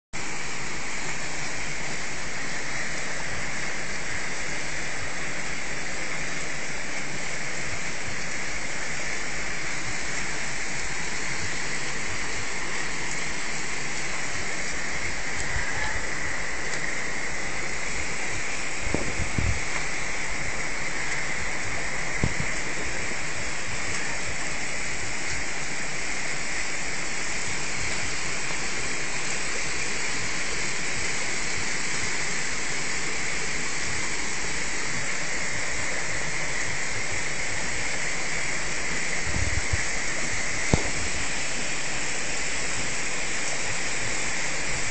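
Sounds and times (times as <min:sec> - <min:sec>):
floodwater rushing: 0:00.2 - 0:44.9
low thumps: 0:18.8 - 0:19.8, 0:22.2 - 0:23.0, 0:40.6 - 0:41.2.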